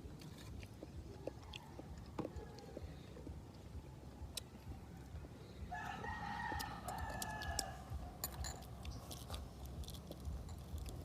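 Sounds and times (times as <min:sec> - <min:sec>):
chewing clicks: 0:00.2 - 0:02.9
rooster crowing: 0:05.7 - 0:08.2.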